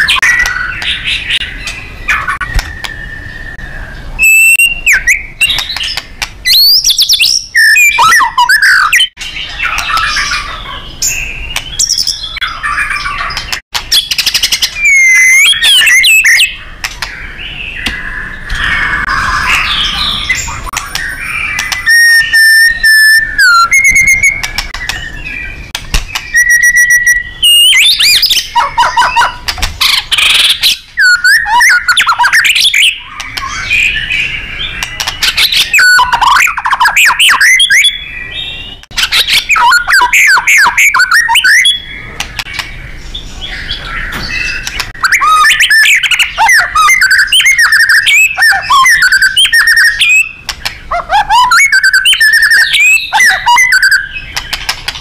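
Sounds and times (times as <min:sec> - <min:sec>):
bird singing varied song: 0:00.0 - 0:55.0.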